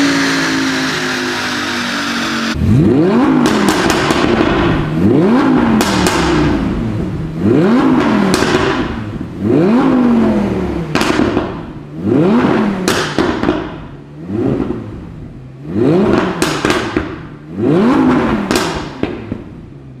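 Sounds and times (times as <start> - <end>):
car engine revving: 0.0 - 20.0
exhaust pops and crackles: 3.4 - 5.0, 5.6 - 6.6, 7.9 - 9.3, 10.9 - 11.8, 12.8 - 14.0, 16.0 - 17.4, 18.0 - 19.7.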